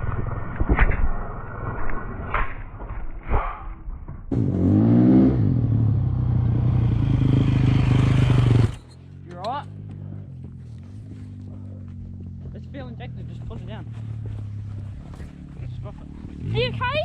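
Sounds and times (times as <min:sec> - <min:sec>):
dirt bike engine running unevenly: 0:05.7 - 0:09.0, 0:09.8 - 0:17.0.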